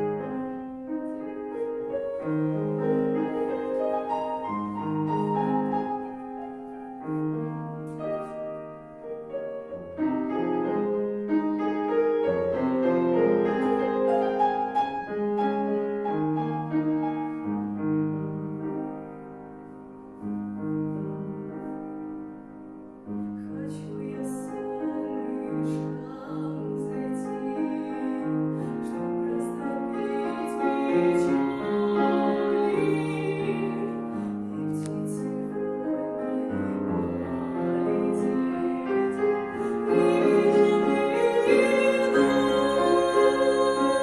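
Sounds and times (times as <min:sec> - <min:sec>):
woman singing classical style: 0:00.0 - 0:06.4, 0:23.1 - 0:44.0
piano accompaniment: 0:00.0 - 0:44.0.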